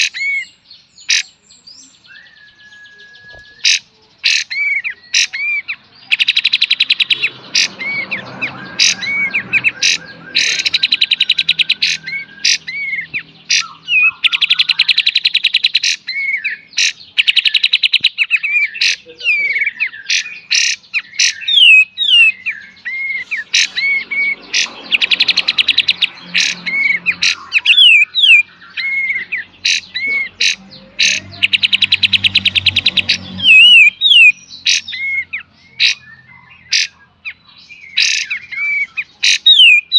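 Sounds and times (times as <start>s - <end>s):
songbird falling whistles: 2.2s - 3.7s.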